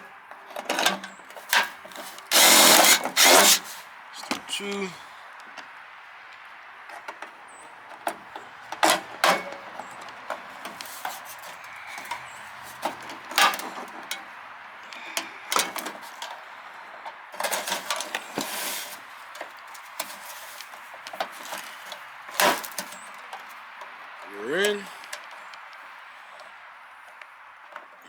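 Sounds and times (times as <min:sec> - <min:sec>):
clicks and knocks of hand tools: 0:00.5 - 0:03.8, 0:08.0 - 0:14.3.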